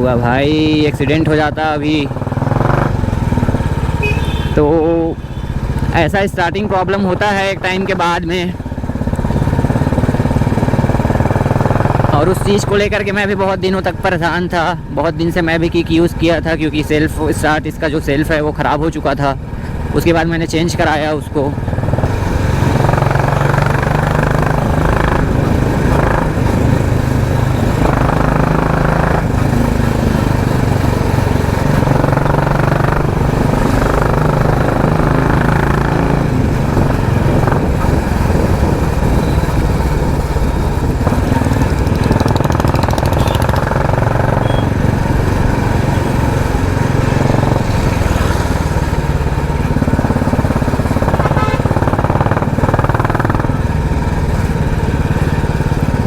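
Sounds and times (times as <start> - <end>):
motorcycle engine revving: 0.0 - 18.2, 19.3 - 56.0.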